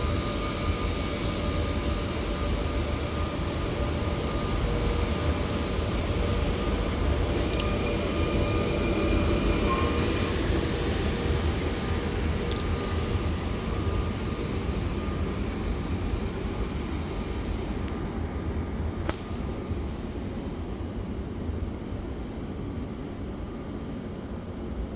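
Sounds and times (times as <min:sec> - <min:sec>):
high wheel squeal: 0:00.0 - 0:17.0
train wheels rumbling on rails: 0:00.0 - 0:24.9.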